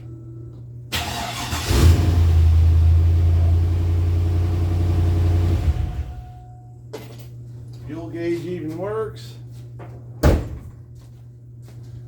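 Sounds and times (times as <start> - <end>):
fuel pump whine: 0.9 - 6.7
truck engine revving and running: 1.0 - 6.3.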